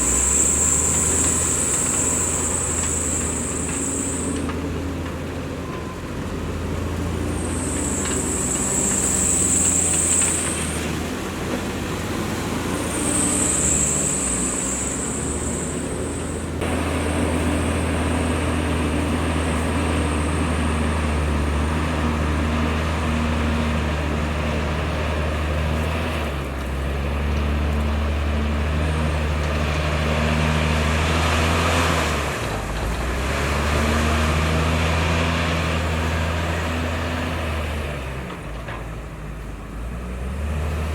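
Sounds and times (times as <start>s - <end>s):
high-pitched squeal: 0.0s - 4.6s, 7.0s - 11.2s, 12.0s - 25.0s
diesel engine running: 0.0s - 40.9s.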